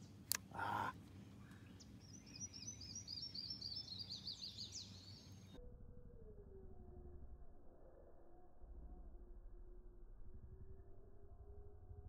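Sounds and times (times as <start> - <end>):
songbird singing: 0.0 - 9.4.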